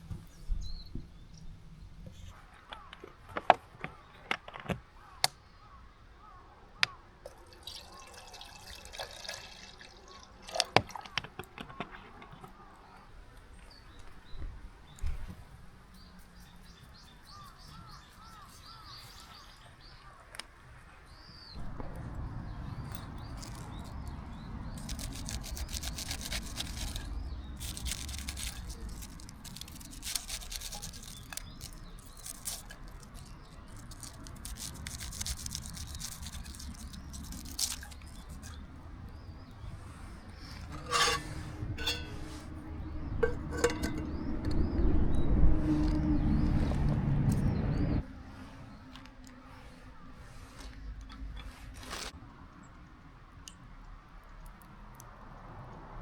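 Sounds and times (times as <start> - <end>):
clicks and knocks of handling: 2.0 - 5.4, 10.6 - 12.8, 40.6 - 42.5, 43.2 - 44.6
water dripping: 7.2 - 11.5
water running and splashing: 7.4 - 11.1.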